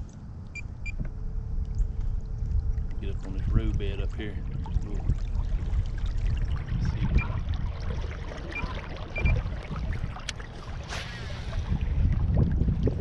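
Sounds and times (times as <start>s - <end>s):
water lapping against hull: 0.5s - 13.0s
wind buffeting microphone: 1.8s - 13.0s
brief swish: 10.8s - 11.7s.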